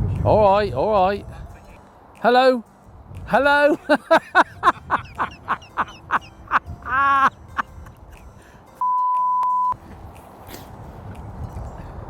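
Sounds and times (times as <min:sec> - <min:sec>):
electronic censor bleep: 0:08.8 - 0:09.8.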